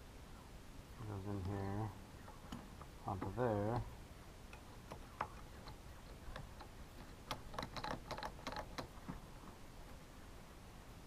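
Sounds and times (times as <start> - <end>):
small plastic parts clicking: 4.5 - 8.9.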